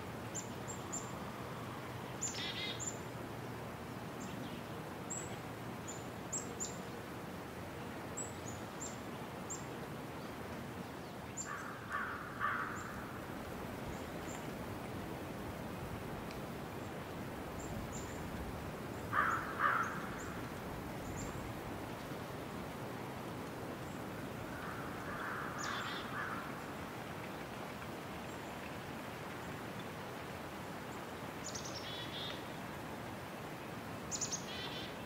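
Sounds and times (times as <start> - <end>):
birds calling: 11.4 - 13.0, 19.1 - 21.3, 24.6 - 26.5.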